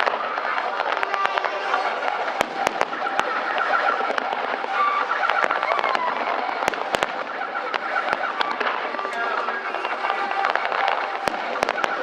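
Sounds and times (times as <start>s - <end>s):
fireworks cracks and bangs: 0.0s - 12.0s
background din: 8.3s - 11.5s.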